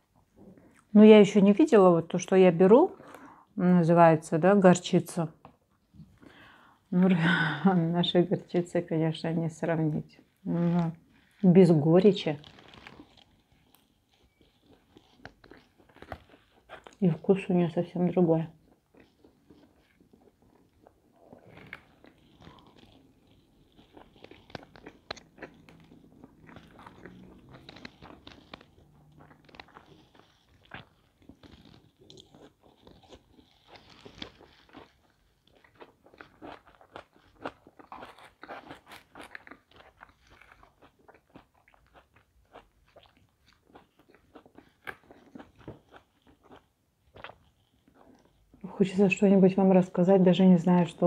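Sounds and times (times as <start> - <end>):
chewing with crunches: 9.7 - 49.2
biting into crust: 12.2 - 17.0, 18.6 - 48.6
wet mouth sounds: 18.6 - 48.6.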